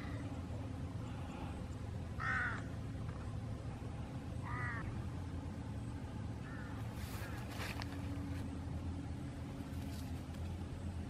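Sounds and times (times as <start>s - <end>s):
bird calling: 0.0s - 3.4s, 4.0s - 5.1s, 6.3s - 8.4s
low background noise: 0.0s - 11.0s.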